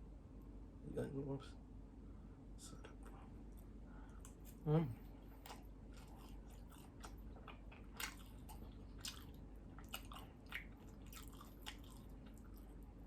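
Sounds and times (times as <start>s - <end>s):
chewing mouth clicks: 5.3s - 12.8s.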